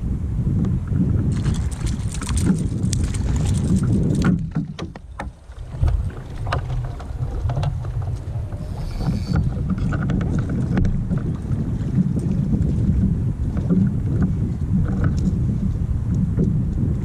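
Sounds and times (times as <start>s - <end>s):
water and wind rumble: 0.0s - 17.0s.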